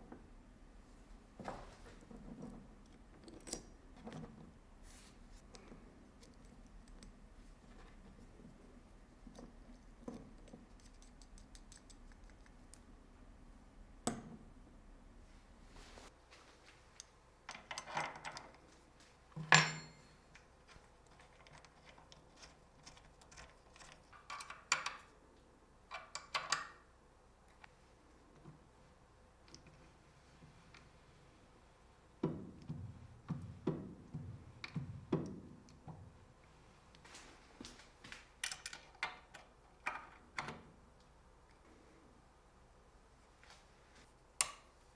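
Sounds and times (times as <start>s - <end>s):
clicks and clinks of tools: 19.4s - 20.5s
metallic clank with ring: 19.5s - 20.2s.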